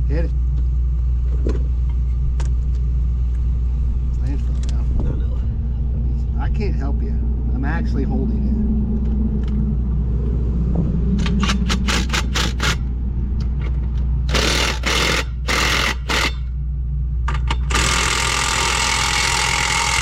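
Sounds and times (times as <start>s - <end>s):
engine running low: 0.0s - 20.0s
impact wrench bursts: 14.3s - 16.5s, 17.3s - 20.0s.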